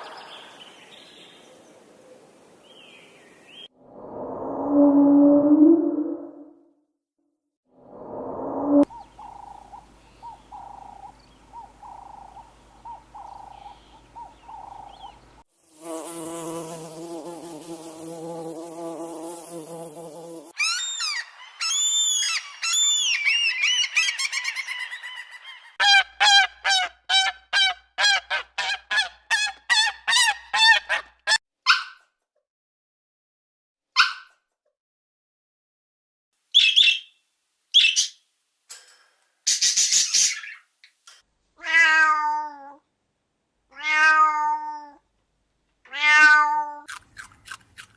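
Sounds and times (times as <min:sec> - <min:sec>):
rising and falling chirps: 0:03.8 - 0:06.7, 0:07.8 - 0:11.2, 0:20.6 - 0:25.7.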